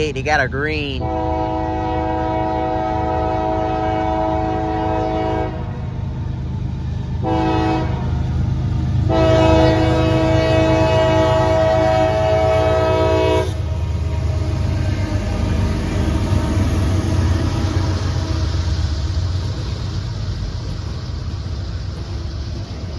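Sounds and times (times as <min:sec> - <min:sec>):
train rumble: 0:00.0 - 0:22.9
train air horn blasts: 0:01.0 - 0:05.8, 0:07.2 - 0:08.3, 0:09.1 - 0:18.8.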